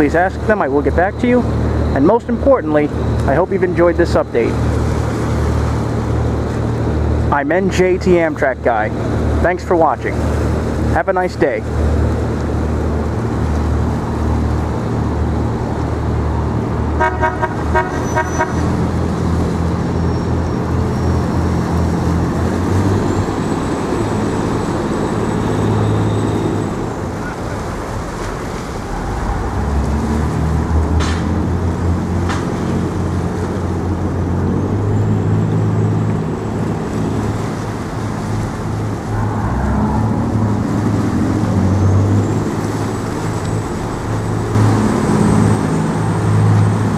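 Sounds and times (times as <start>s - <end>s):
engine droning: 0.0s - 46.9s
short pulsing horn toot: 17.0s - 18.7s.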